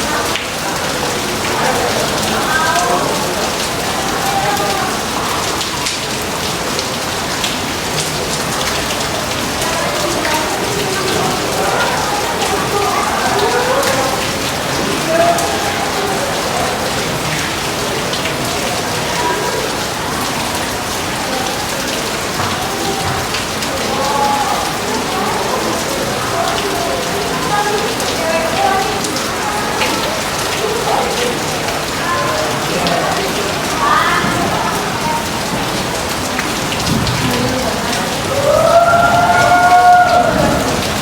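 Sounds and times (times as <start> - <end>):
raindrops ticking on a surface: 0.0 - 41.0
steady rain: 0.0 - 41.0.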